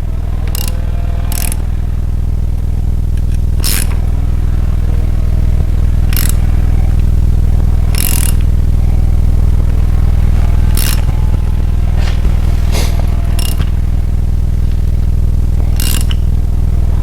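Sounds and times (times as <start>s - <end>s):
low machine hum: 0.0s - 17.0s
brief scraping sounds: 12.0s - 13.1s.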